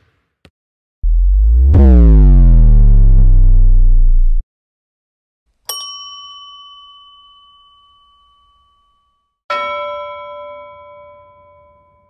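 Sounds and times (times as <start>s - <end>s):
bell-like dings: 5.7s - 12.0s.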